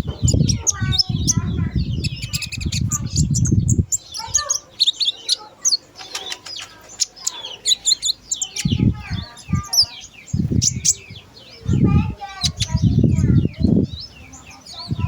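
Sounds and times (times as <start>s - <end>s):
songbird chirping and twittering: 0.0s - 15.0s
wings flapping: 5.9s - 7.2s.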